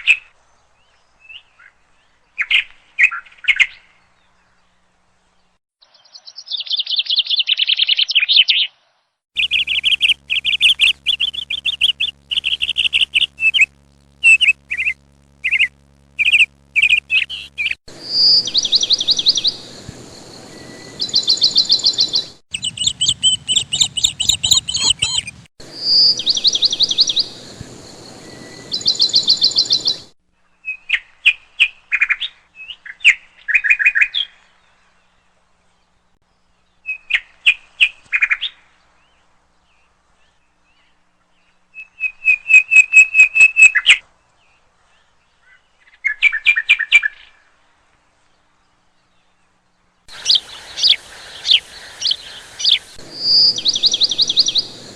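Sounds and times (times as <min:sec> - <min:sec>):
bird chirping in fast trills: 0:09.4 - 0:30.8, 0:50.1 - 0:54.9.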